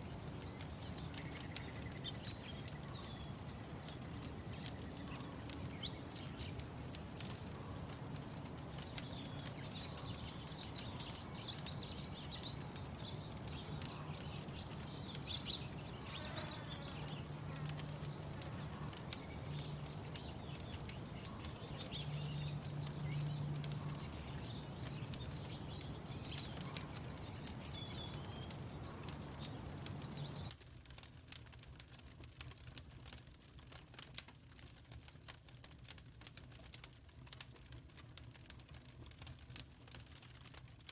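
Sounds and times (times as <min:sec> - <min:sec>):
small birds chirping: 0:00.0 - 0:30.6
wood fire crackling: 0:00.0 - 0:40.9.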